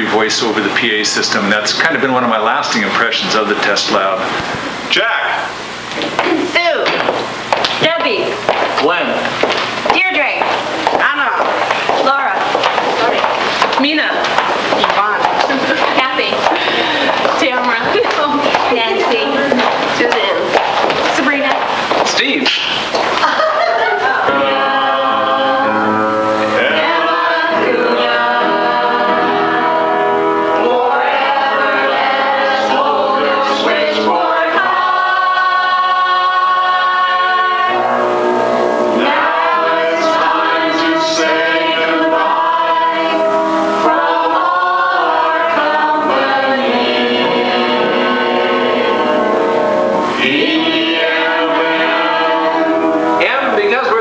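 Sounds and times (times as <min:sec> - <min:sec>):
choir singing: 0:15.0 - 0:20.6, 0:23.6 - 0:54.0
music: 0:24.2 - 0:54.0.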